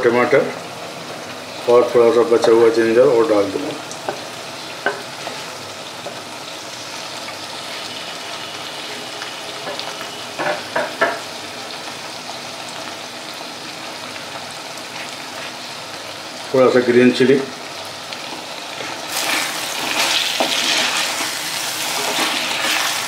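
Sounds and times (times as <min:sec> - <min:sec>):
chicken sizzling in a pot: 0:00.0 - 0:23.0.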